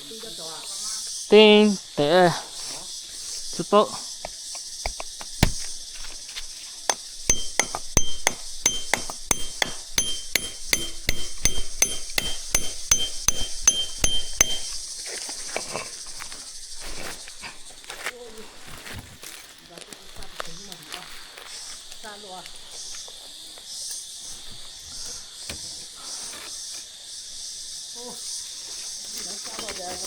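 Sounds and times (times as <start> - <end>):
sharp metallic knocks: 4.9 - 5.7, 6.9 - 14.8.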